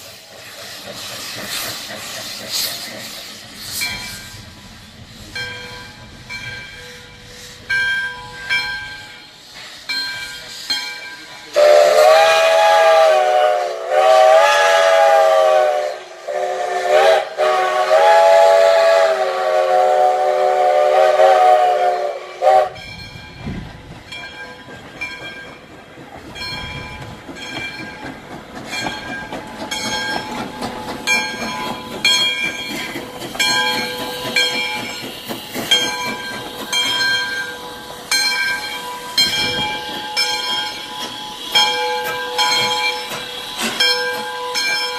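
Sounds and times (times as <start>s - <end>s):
locomotive hissing steam: 0.0s - 44.9s
steam locomotive whistle: 6.7s - 9.4s, 11.5s - 23.0s, 31.1s - 44.9s.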